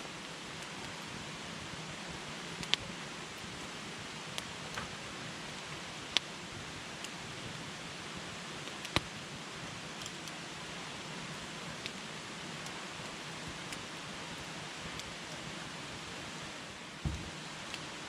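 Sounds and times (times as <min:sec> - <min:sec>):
steady fire hiss: 0:00.0 - 0:18.0
burning wood popping: 0:17.0 - 0:17.8.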